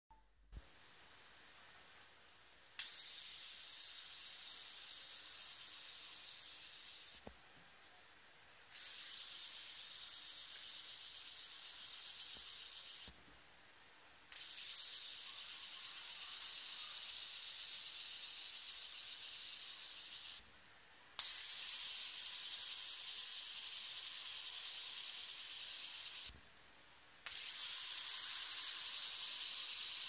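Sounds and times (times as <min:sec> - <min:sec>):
fidget spinner whirring: 0:02.8 - 0:07.3, 0:08.7 - 0:13.2, 0:14.3 - 0:20.4, 0:21.2 - 0:26.3, 0:27.2 - 0:30.0.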